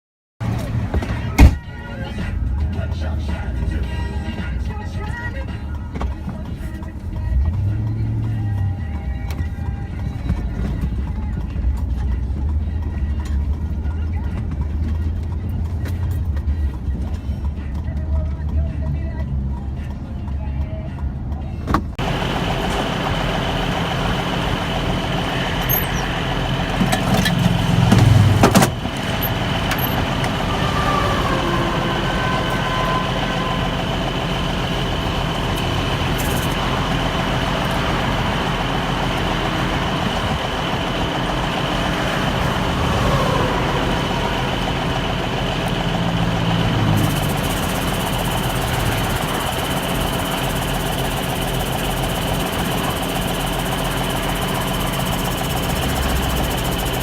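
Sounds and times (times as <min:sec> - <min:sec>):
truck engine running: 0:00.4 - 0:57.0.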